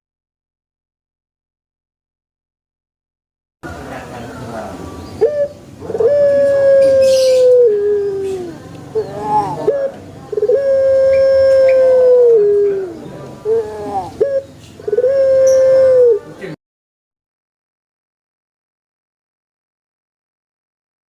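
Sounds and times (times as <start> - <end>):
dove cooing: 5.0 - 16.6.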